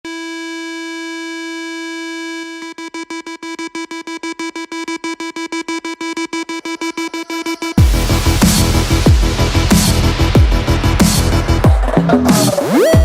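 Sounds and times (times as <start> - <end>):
stuttering synthesizer note: 6.0 - 13.0.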